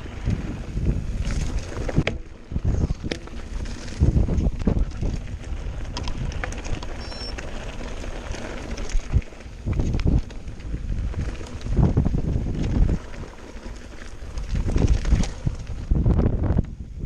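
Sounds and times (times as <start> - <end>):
bike rattling over stones: 0.0 - 17.0
wind buffeting microphone: 0.0 - 17.0.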